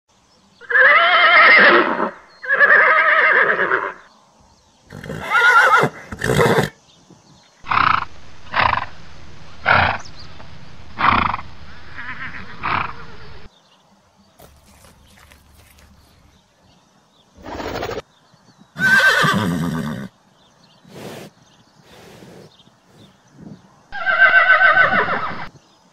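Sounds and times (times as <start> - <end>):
horses neighing: 4.9 - 6.8, 11.0 - 13.5, 18.8 - 20.1, 24.0 - 25.5.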